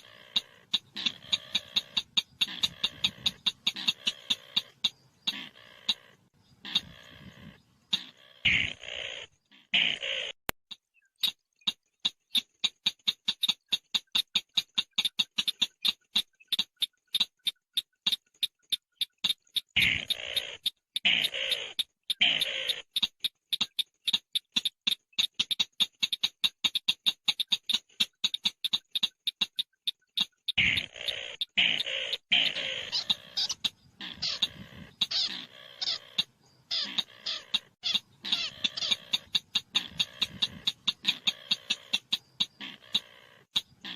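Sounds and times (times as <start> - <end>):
shrike harsh raspy calls: 0.0 - 10.4, 19.5 - 24.2, 30.2 - 43.9
bird calling in high chips: 12.2 - 43.9.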